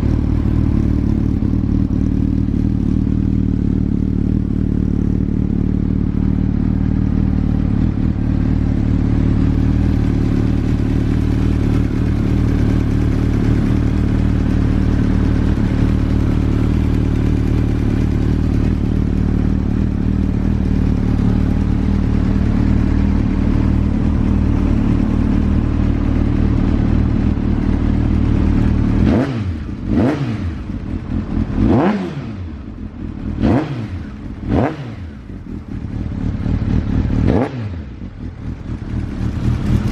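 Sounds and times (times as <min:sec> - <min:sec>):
motorcycle engine idling: 0:00.0 - 0:39.9
engine revving: 0:28.5 - 0:35.8, 0:36.4 - 0:38.2.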